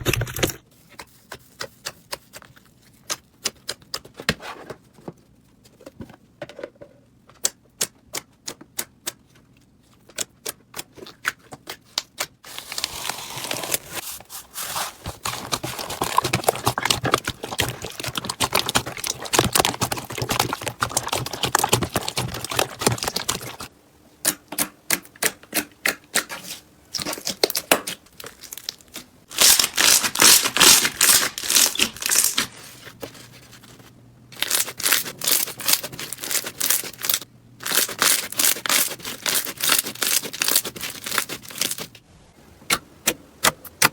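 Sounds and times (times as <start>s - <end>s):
slime crackling: 14.6s - 23.7s, 26.9s - 32.8s.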